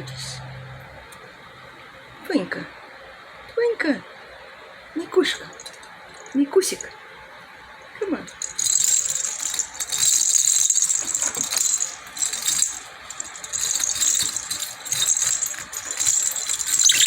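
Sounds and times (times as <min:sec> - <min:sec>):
lovebirds chattering: 0:16.8 - 0:17.0.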